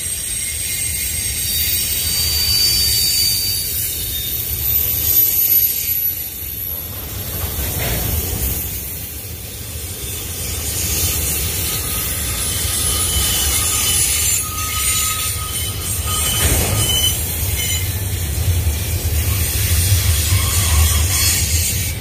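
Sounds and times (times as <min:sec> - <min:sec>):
freight train wheels rumbling: 0:00.0 - 0:22.0
faint wheel squeals: 0:00.1 - 0:08.5, 0:10.1 - 0:18.0.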